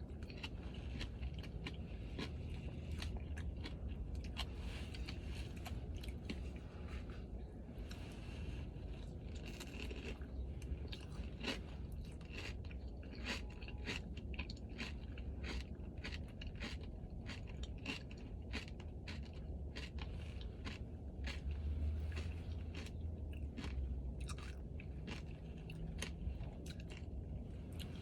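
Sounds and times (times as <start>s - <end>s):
crunchy chewing: 0.0s - 28.0s
soft chewing: 0.0s - 28.0s.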